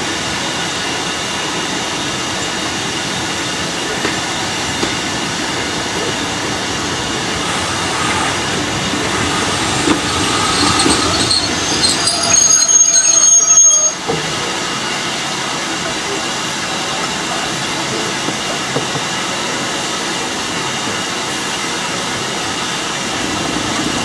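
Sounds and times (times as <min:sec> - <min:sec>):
train rumbling and rattling: 0:00.0 - 0:24.0
high-pitched wheel squeal: 0:07.4 - 0:14.1.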